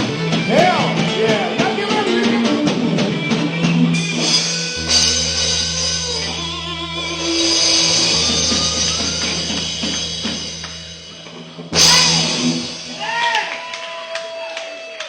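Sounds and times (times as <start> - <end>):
bending guitar notes: 0.0 - 13.2
rock band playing: 0.0 - 13.8
cymbal strokes: 4.0 - 13.4.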